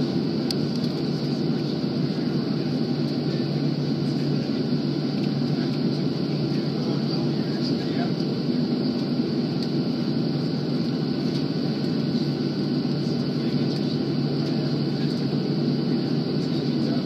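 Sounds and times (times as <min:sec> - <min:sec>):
jet engine rumble in cabin: 0:00.0 - 0:17.0.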